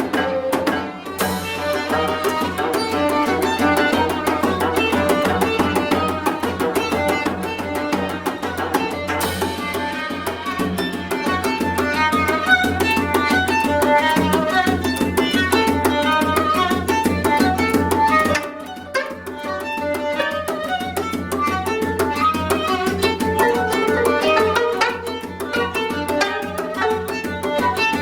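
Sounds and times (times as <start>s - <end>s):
fast even percussion: 0.0s - 28.0s
plucked zither notes: 22.1s - 27.0s.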